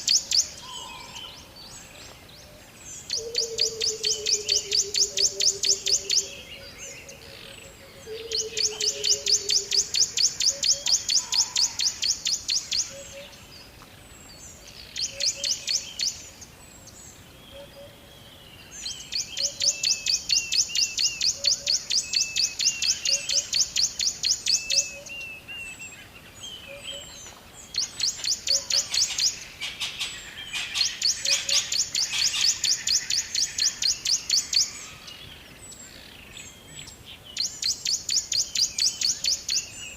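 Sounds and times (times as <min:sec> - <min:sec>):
birds trilling: 0:00.0 - 0:13.7, 0:26.0 - 0:39.9.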